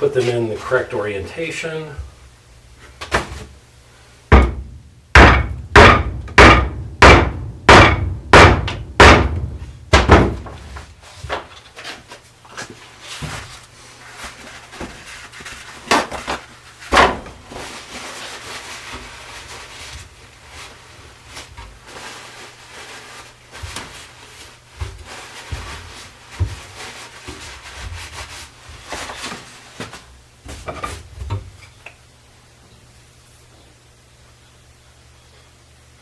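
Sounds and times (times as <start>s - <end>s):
knocks on wooden chair frame: 4.3s - 10.6s.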